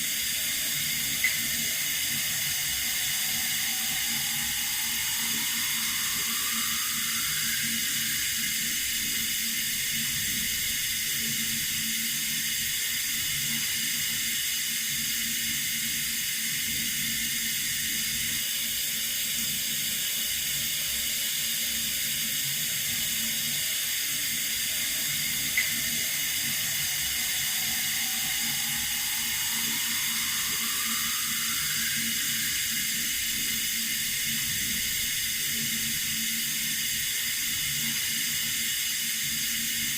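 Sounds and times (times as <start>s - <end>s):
water running from tap: 0.0s - 20.4s, 21.2s - 39.9s
faint rising tone: 0.1s - 10.6s, 23.6s - 35.0s.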